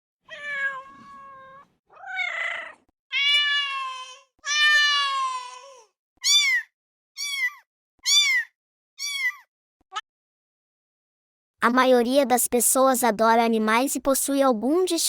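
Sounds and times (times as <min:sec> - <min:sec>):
cat meowing: 0:00.3 - 0:10.0.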